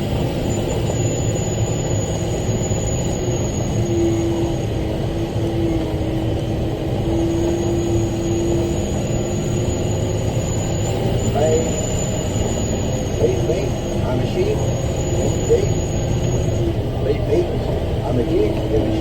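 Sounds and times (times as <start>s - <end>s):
steady whine: 0.0s - 19.0s
truck diesel engine running: 0.0s - 19.0s.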